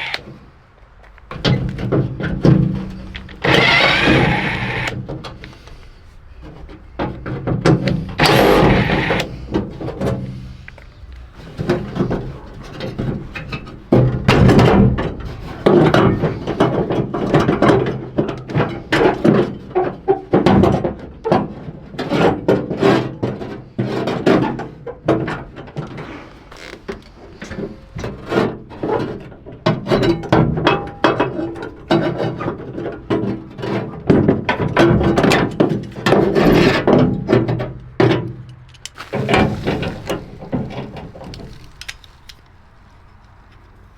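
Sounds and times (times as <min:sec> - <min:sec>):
metal knocks and clunks: 0:01.3 - 0:05.5, 0:06.4 - 0:10.5, 0:11.4 - 0:26.0, 0:27.4 - 0:38.5, 0:39.1 - 0:41.7
ratchet clicking: 0:03.4 - 0:05.0.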